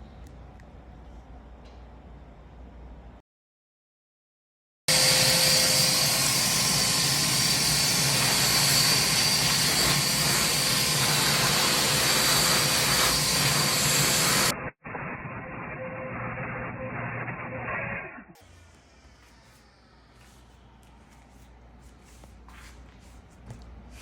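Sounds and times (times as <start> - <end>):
power tool running: 4.9 - 14.6, 18.4 - 20.2.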